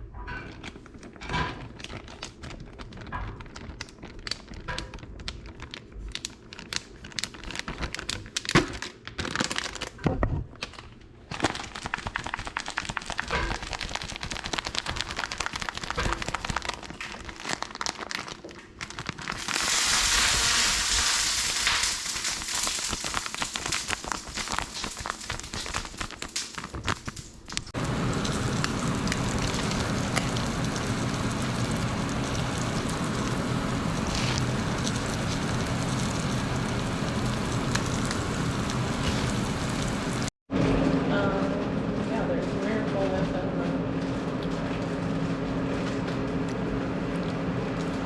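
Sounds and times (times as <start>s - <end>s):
fish crackling and sizzling: 11.4s - 18.2s, 18.8s - 40.3s
steady noise with low hum: 22.1s - 48.0s.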